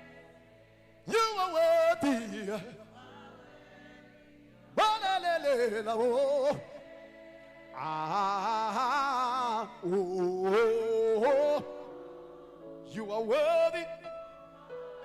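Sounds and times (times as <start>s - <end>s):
several voices singing: 0.0s - 15.0s
person singing wordless phrases: 1.1s - 3.1s, 4.8s - 6.8s, 7.8s - 11.9s, 12.9s - 14.1s.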